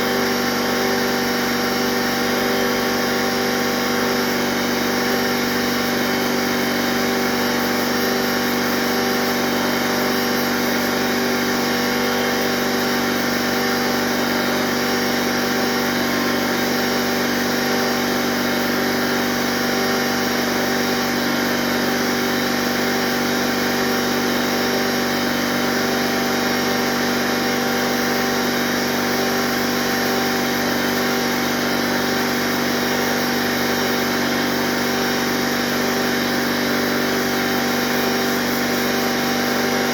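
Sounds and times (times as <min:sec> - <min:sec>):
air compressor humming: 0:00.0 - 0:39.9.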